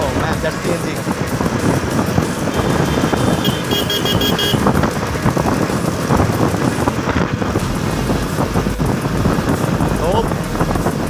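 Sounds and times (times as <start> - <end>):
motorcycle road noise: 0.0 - 11.0
vehicle horn short beeps: 2.6 - 4.6.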